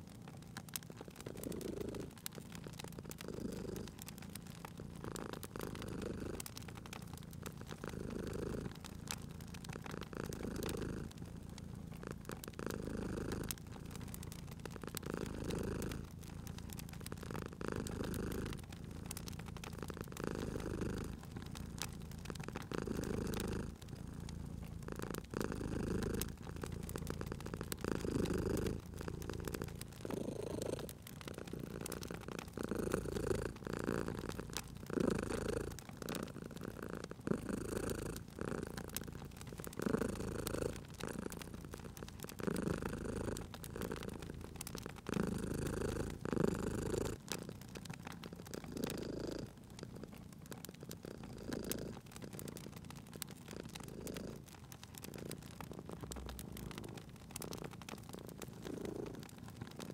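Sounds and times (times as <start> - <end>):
cat purring: 0.0 - 59.9
wood fire crackling: 0.0 - 59.9.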